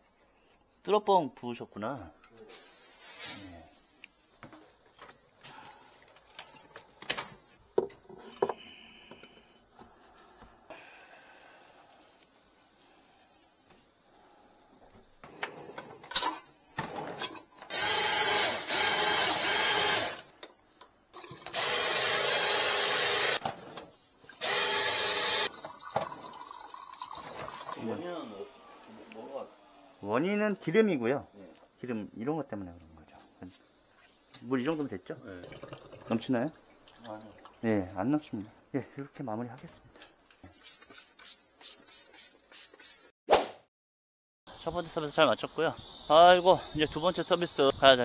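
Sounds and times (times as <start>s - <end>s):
cordless drill spinning drain cable: 17.7s - 20.3s, 21.4s - 23.4s, 24.4s - 25.5s.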